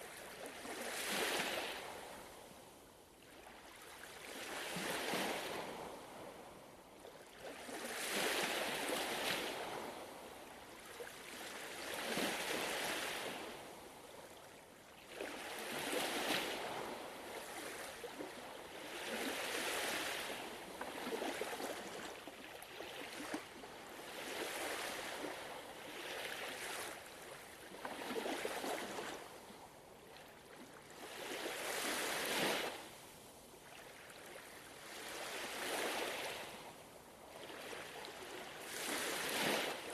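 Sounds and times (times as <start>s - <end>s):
gentle ocean waves washing: 33.7s - 39.9s.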